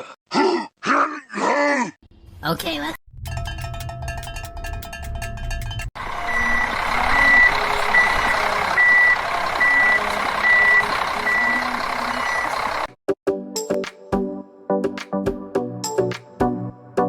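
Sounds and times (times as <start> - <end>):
rushing vehicle noise: 3.2 - 13.0
truck reversing alarm beeping: 4.2 - 12.9.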